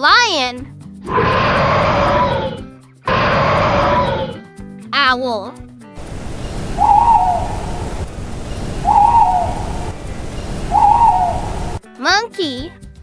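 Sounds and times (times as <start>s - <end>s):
owl hooting: 1.1s - 4.4s, 6.0s - 11.8s
low background rumble: 6.0s - 11.8s.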